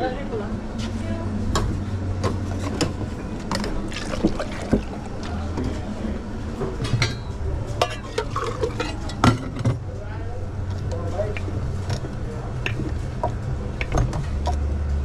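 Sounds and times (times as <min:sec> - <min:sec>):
low machine hum: 0:00.0 - 0:15.0
cups and utensils clinking: 0:02.2 - 0:05.8, 0:06.7 - 0:09.8, 0:11.3 - 0:14.6
liquid pouring: 0:03.6 - 0:05.5.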